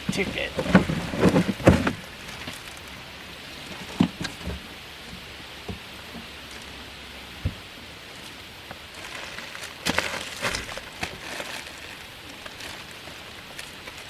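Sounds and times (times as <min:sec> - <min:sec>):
sharp knocks and crackles: 0:00.0 - 0:14.0
steady background hiss: 0:00.0 - 0:14.0
plastic wrapping rustling: 0:00.1 - 0:04.7, 0:07.4 - 0:14.0.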